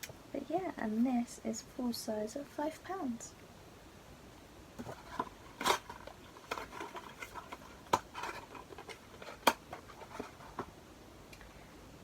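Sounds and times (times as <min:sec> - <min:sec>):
light scratching and rustling: 0:04.8 - 0:10.7.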